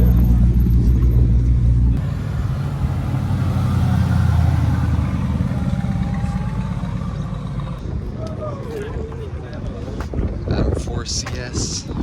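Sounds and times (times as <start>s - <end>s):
car engine pulsing: 0.0s - 7.8s.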